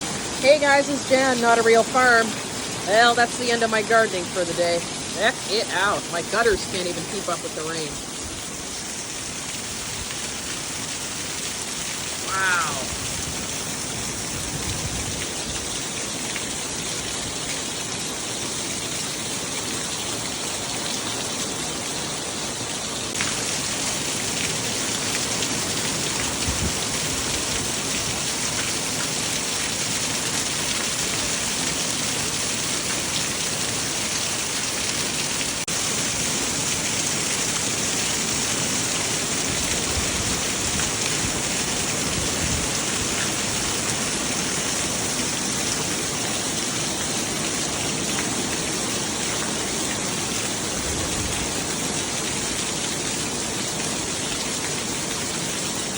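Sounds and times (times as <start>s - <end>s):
heavy rain pouring: 0.0s - 55.9s.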